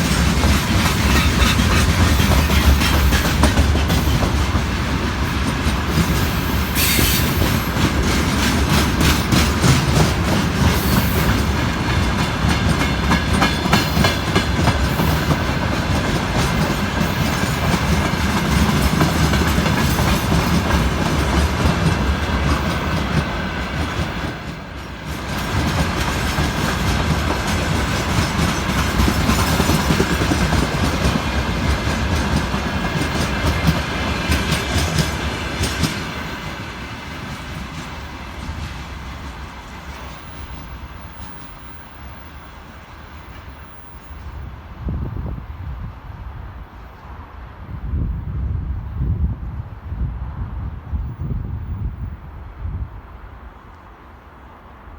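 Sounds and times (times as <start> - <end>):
freight train wheels clattering: 0.0 - 42.0.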